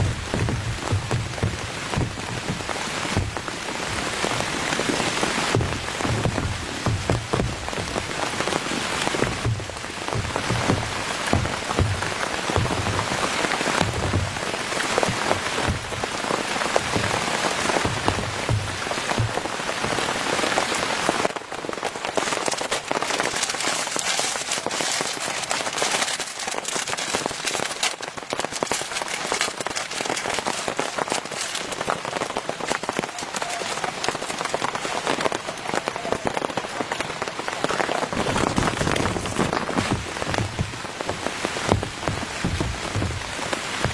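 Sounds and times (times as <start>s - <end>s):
heavy rain patter: 0.0s - 43.9s.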